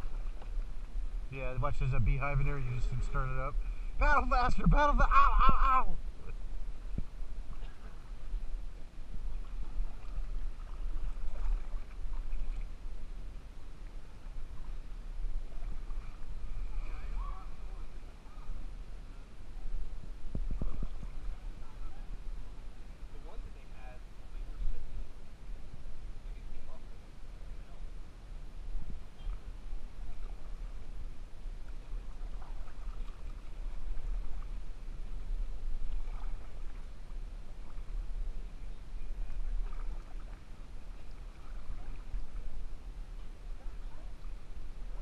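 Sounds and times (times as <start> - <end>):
paddle strokes in water: 0.0 - 1.3, 2.0 - 23.6, 28.6 - 45.0
low rumble: 0.0 - 13.4
wind rumble on microphone: 0.0 - 45.0.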